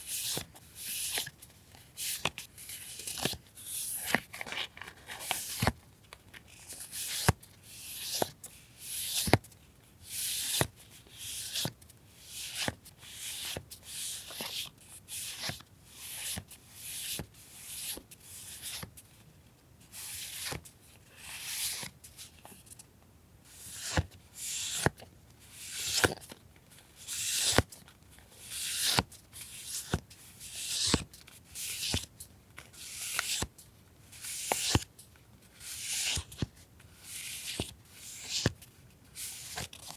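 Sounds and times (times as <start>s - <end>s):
paper rustling and crinkling: 4.0s - 6.7s.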